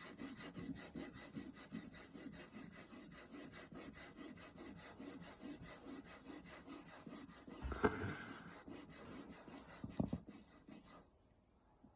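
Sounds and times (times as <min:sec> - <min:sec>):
fingernails being filed: 0:00.0 - 0:11.0
louder knock: 0:07.6 - 0:08.3.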